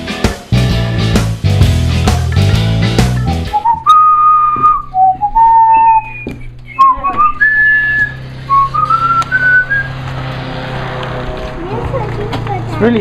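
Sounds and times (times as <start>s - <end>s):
person whistling a tune: 3.4s - 9.9s.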